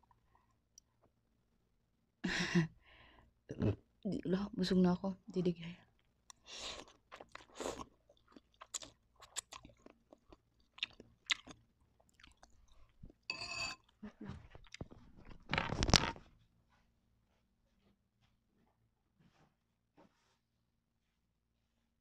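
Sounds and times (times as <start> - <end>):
chewing and slurping noodles: 6.0 - 15.0.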